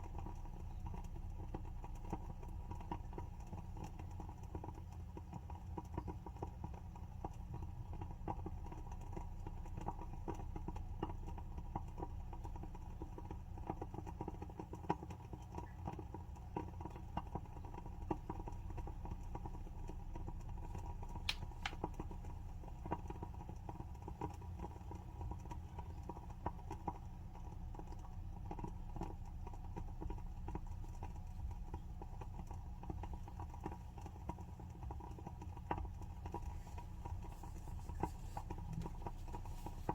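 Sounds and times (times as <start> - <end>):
candle wick crackling: 5.8 - 39.9.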